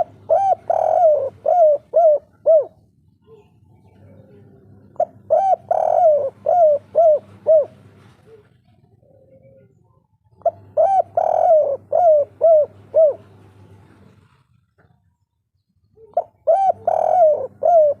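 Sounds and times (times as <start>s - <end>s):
dove cooing: 0.0s - 14.5s, 15.9s - 18.0s.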